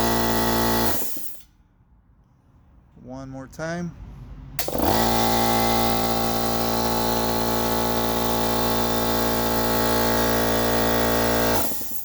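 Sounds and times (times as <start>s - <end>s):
air compressor humming: 0.0s - 1.5s, 4.6s - 12.0s.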